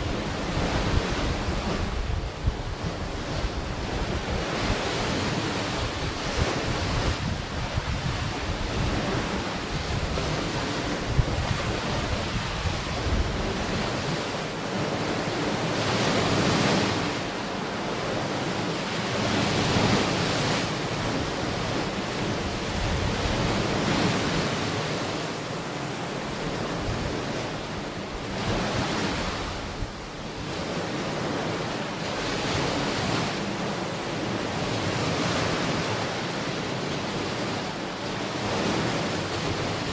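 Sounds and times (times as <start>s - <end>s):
wind buffeting microphone: 0.0s - 17.2s, 19.1s - 25.3s
ocean waves washing onto beach: 0.0s - 39.9s.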